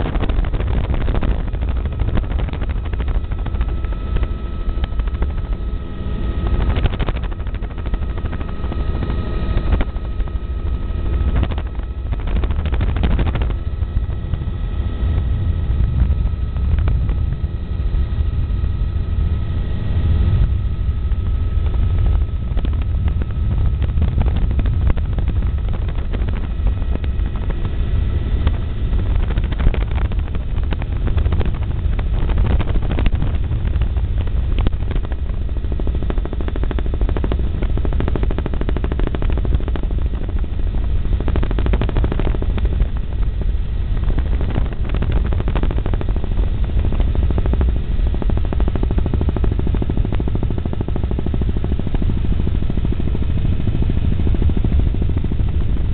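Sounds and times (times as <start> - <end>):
helicopter engine drone: 0.0 - 55.9
helicopter rotor blades chopping: 0.0 - 55.9.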